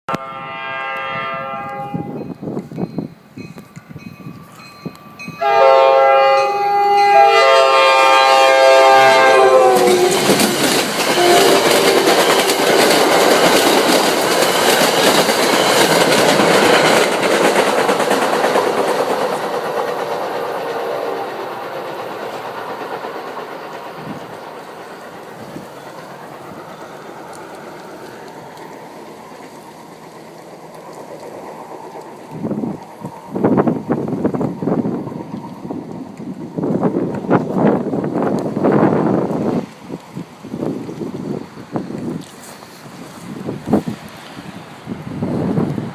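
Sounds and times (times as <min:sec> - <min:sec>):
locomotive horn multi-tone chord: 0:00.1 - 0:02.4, 0:05.4 - 0:13.0, 0:20.1 - 0:21.8
train wheels clacking over rail joints: 0:08.8 - 0:44.4.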